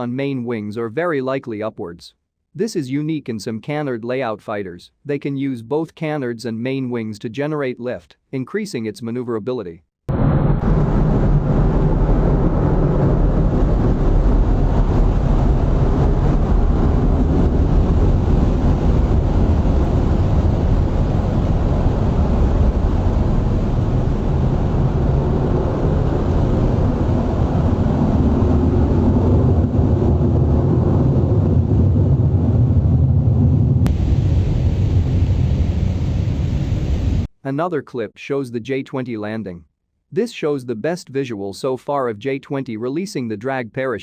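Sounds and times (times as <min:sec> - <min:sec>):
jet engines roaring: 0:10.1 - 0:37.3.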